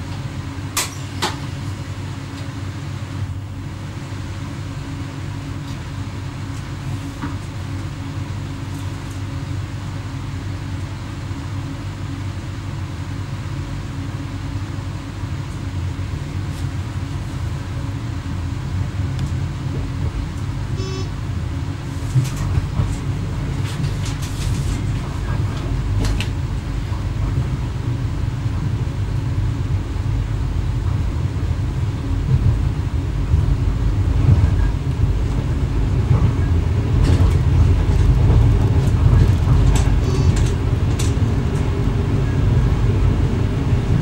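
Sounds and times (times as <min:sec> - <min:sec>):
constant hum: 0:00.0 - 0:44.0
train cab rumble: 0:00.0 - 0:44.0
short high beep: 0:20.8 - 0:21.1, 0:40.0 - 0:40.4.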